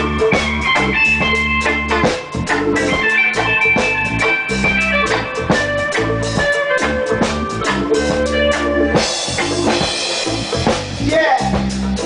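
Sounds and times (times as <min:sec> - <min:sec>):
drum hits: 0:00.0 - 0:12.0
live reggae band playing: 0:00.0 - 0:12.0.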